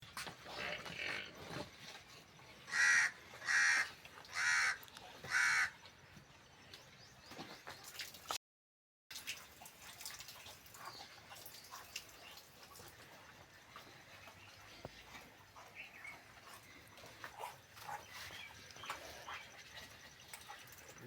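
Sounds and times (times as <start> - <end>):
bird cawing: 2.7 - 5.7
faint ticks and rustling: 9.8 - 21.0.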